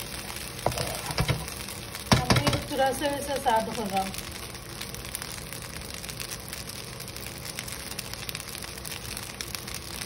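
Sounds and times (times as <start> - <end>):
noodles sizzling in a wok: 0.0 - 10.0.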